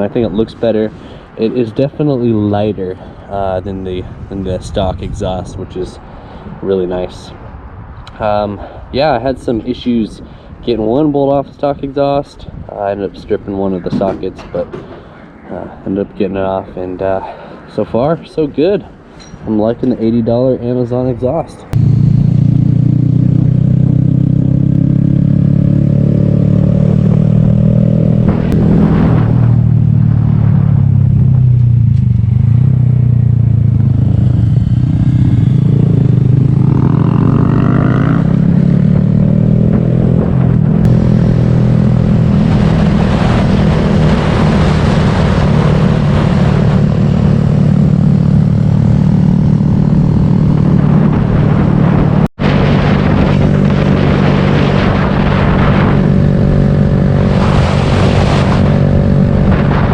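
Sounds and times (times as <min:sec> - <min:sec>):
rushing wind noise: 0:00.0 - 0:59.9
motorcycle engine revving: 0:21.8 - 0:59.9.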